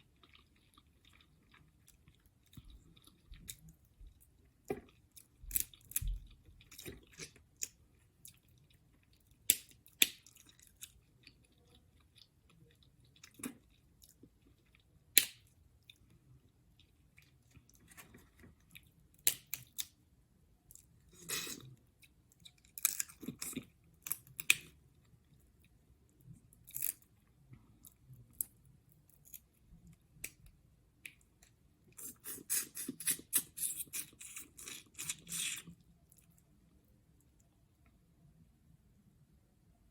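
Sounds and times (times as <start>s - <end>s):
chewing with clicks and snaps: 0.0s - 20.0s, 20.7s - 38.0s
crackling of crab shells: 19.1s - 20.0s, 22.4s - 24.8s, 26.6s - 27.2s.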